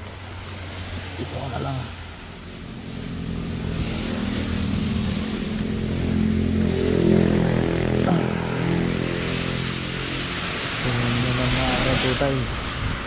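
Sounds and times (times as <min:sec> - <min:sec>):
motorcycle engine accelerating: 0:02.5 - 0:12.0
steady high hiss: 0:08.1 - 0:13.0.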